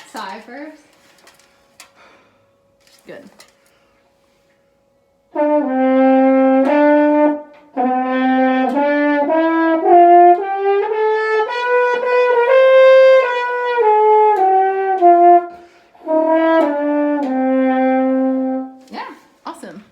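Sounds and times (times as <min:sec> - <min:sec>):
french horn playing scale: 0:05.3 - 0:18.9.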